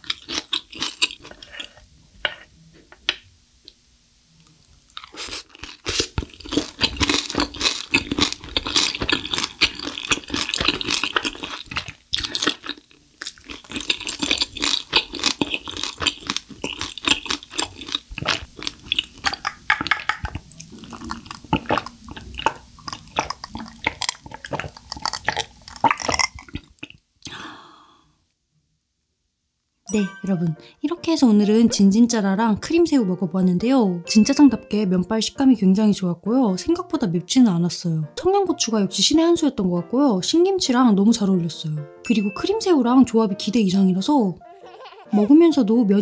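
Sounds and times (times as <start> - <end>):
crisp chewing: 0.0 - 1.8, 4.4 - 27.0
person drinking water: 5.0 - 27.4.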